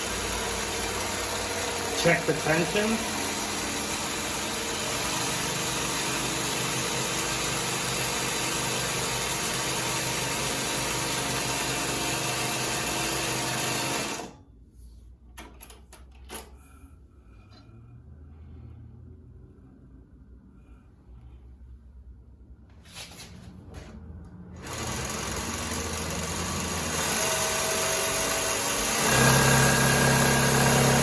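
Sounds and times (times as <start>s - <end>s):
sewing machine running: 0.0s - 14.4s, 24.6s - 31.0s.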